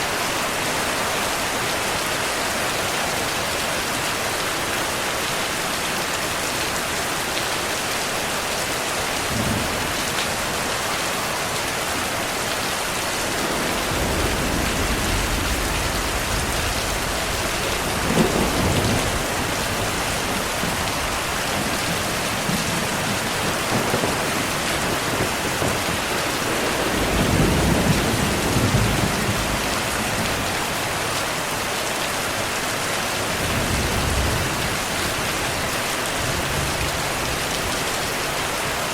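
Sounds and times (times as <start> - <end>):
heavy rain: 0.0 - 38.9
rolling thunder: 12.1 - 31.0
sharp thunderclap: 13.0 - 30.5.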